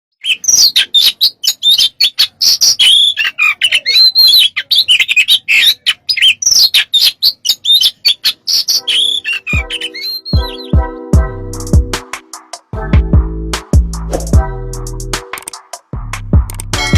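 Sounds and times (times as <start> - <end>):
bird singing chirps and trills: 0.2 - 11.3
music with drum beat: 9.6 - 16.9.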